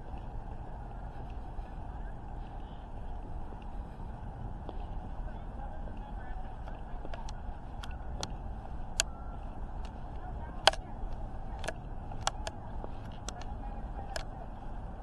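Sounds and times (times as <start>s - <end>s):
sharp clicks: 7.0s - 14.3s.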